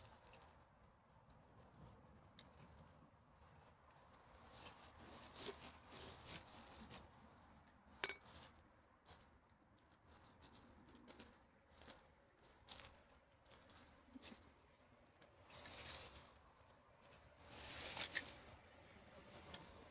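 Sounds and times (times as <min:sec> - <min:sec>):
rustling and crackling litter: 0:00.0 - 0:19.9.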